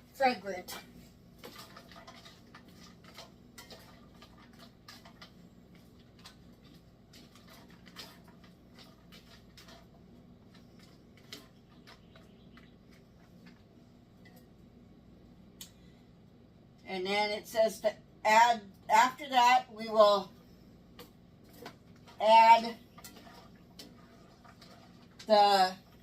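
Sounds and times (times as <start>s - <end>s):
food crackling in a skillet: 0.0s - 15.9s, 20.2s - 26.0s
low steady hum: 0.0s - 26.0s.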